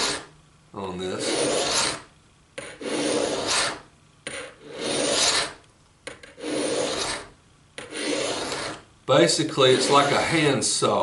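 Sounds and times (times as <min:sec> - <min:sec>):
file rasping on steel: 0:00.0 - 0:00.3, 0:01.1 - 0:05.6, 0:06.2 - 0:08.8, 0:09.4 - 0:10.5.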